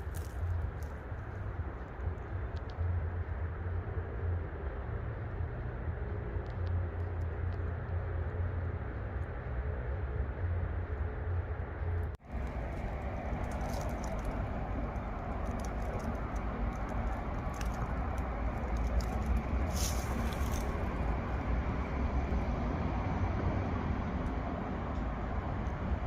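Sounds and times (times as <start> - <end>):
dry vegetation crackling underfoot: 0.0 - 2.1, 12.2 - 22.4
distant traffic rumble: 0.0 - 26.0
short rustle: 17.4 - 21.0.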